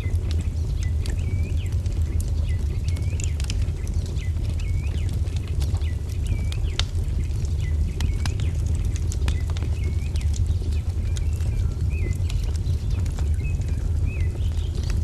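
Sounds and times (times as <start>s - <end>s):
songbird chirping: 0.0s - 15.0s
wood fire crackling: 0.0s - 15.0s.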